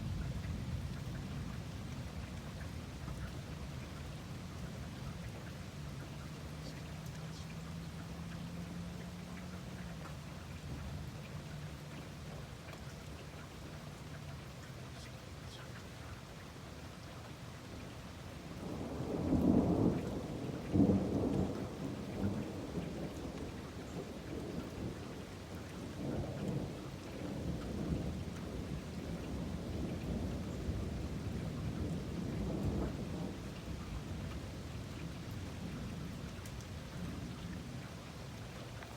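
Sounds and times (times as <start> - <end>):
steady rain: 0.0 - 38.9
thunder rumbling: 18.4 - 36.1.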